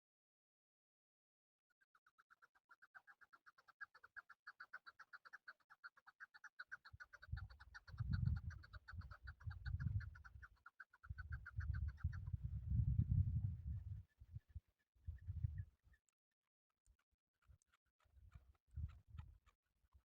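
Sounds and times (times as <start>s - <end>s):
partridge clucking calls: 2.0s - 12.4s.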